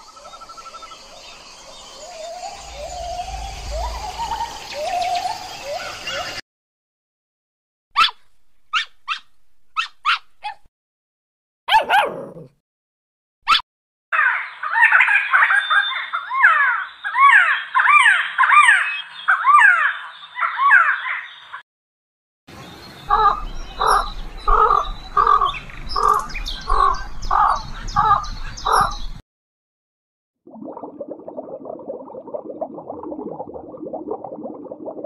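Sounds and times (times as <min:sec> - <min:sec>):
birds chirping: 0:00.0 - 0:06.4, 0:14.2 - 0:21.6, 0:22.5 - 0:29.2
harsh bird calls: 0:01.8 - 0:06.4, 0:14.2 - 0:21.6, 0:22.5 - 0:29.2.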